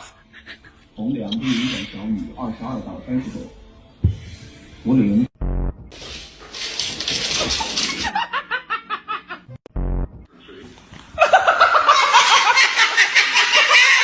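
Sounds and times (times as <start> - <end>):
person laughing: 11.2 - 14.0.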